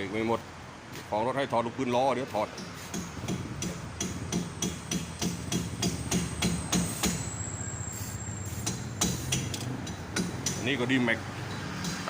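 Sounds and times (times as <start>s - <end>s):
hammer blows on metal: 2.6s - 10.7s.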